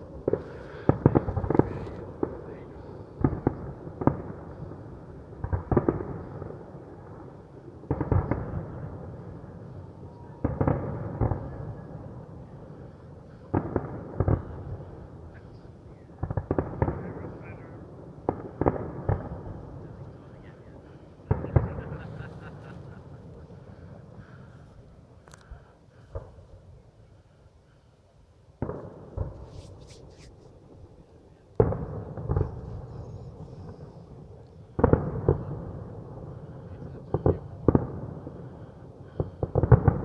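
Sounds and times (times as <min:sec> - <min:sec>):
fireworks muffled bangs: 0:00.0 - 0:07.3, 0:10.4 - 0:12.4, 0:16.1 - 0:17.6, 0:18.3 - 0:20.3, 0:21.1 - 0:24.6, 0:28.6 - 0:40.0.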